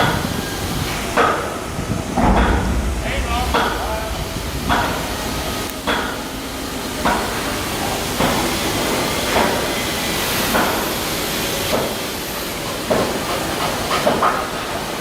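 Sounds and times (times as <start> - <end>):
loud steady hiss: 0.0 - 15.0
short knocks: 2.2 - 6.2.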